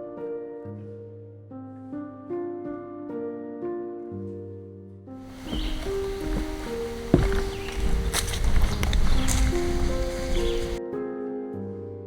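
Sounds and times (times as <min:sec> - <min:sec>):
piano-like background music: 0:00.0 - 0:12.0
rumbling outdoor trail noise: 0:05.3 - 0:10.8.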